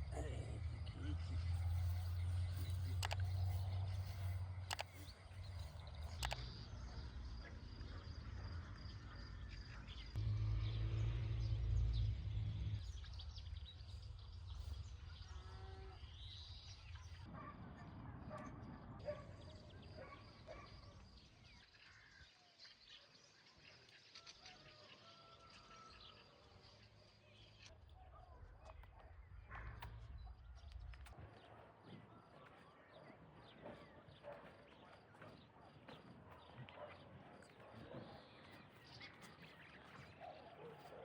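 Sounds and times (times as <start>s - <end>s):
birds chirping and calling: 0.0s - 10.2s.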